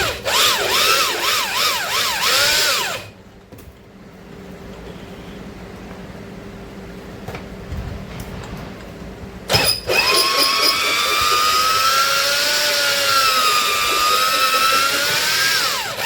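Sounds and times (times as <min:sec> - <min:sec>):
electric drill whining: 0:00.0 - 0:03.1, 0:09.5 - 0:16.0.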